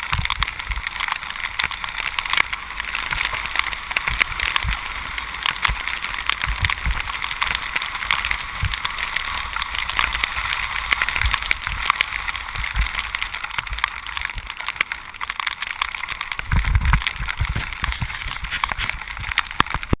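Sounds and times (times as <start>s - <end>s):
rain hissing: 0.0s - 20.0s
tyres on wet road: 0.0s - 20.0s
wind thumps on microphone: 2.5s - 7.5s, 11.1s - 14.6s, 16.3s - 20.0s.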